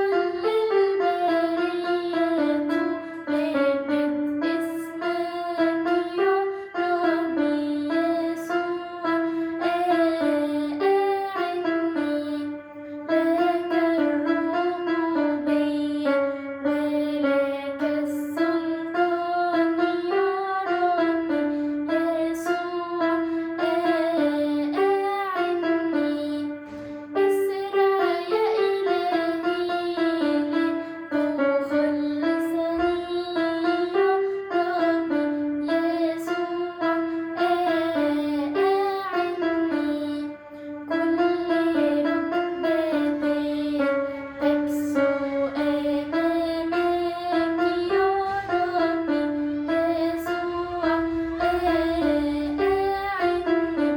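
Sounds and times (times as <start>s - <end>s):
girl singing a hymn: 0.0s - 53.9s
piano accompaniment: 0.0s - 53.9s.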